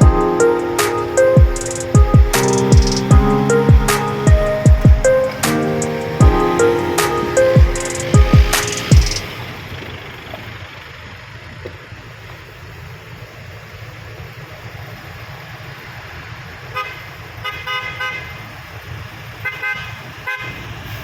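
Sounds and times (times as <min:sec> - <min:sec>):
vehicle horn tooting: 0:16.8 - 0:18.3.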